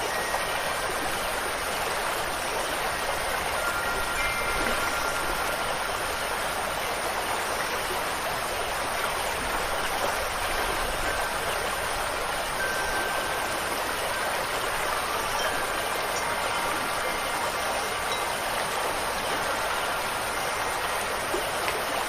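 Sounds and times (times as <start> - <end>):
wind chimes ringing: 0.0 - 2.0, 2.8 - 8.2, 9.4 - 22.0
rushing water: 0.0 - 22.0.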